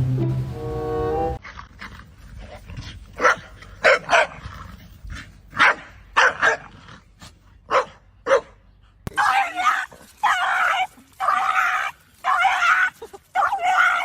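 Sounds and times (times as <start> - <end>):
dog barking: 3.2 - 4.4, 5.6 - 6.7, 7.7 - 8.6.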